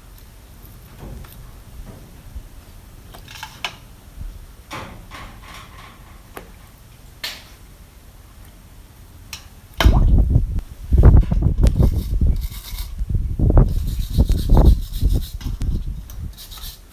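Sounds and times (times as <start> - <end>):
loud low thump: 9.8 - 11.2
short scraping strokes: 11.1 - 13.0, 13.6 - 16.9.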